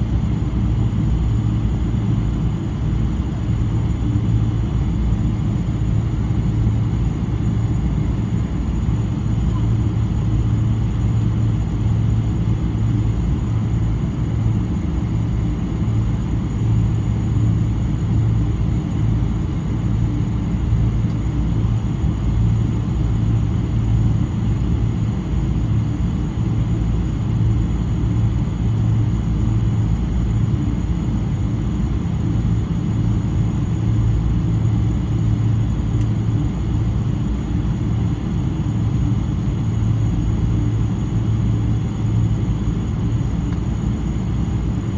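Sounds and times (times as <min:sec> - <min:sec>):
airplane cabin drone: 0:00.0 - 0:44.9.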